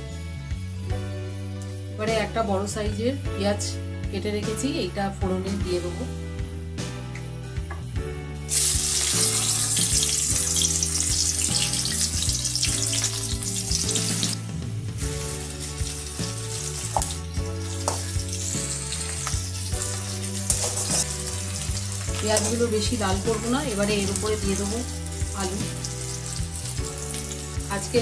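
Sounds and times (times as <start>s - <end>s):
onion sizzling in hot oil: 8.5s - 28.0s
spatula stirring onion: 15.0s - 27.8s.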